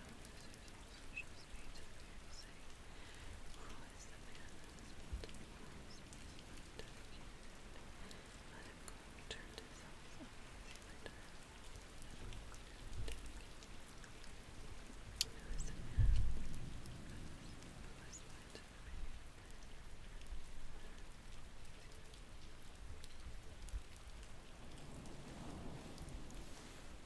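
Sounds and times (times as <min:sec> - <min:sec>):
steady rain: 0:00.0 - 0:27.0
low rumble of thunder: 0:14.6 - 0:20.9, 0:22.8 - 0:27.0.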